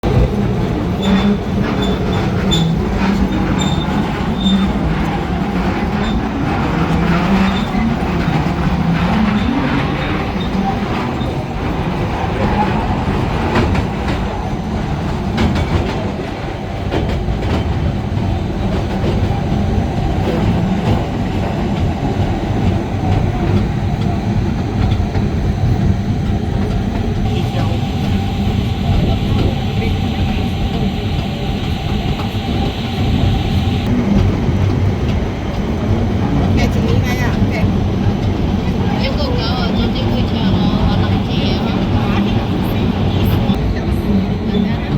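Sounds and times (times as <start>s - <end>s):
train rumble: 0.0s - 44.9s
faint wheel squeal: 1.0s - 5.0s.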